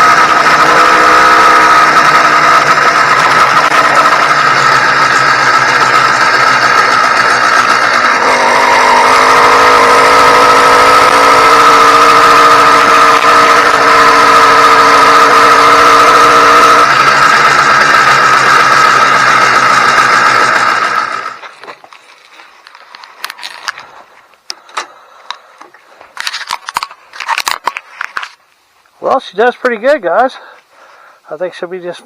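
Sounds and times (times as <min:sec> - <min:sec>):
motorized bicycle engine running: 0:00.0 - 0:21.4.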